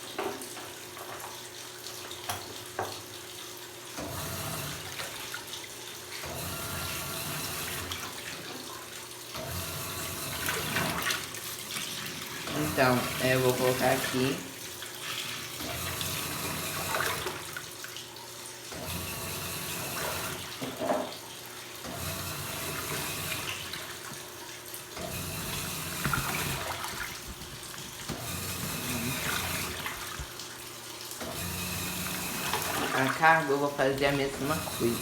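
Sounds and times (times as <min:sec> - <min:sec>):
water sloshing and churning: 0:22.7 - 0:35.0.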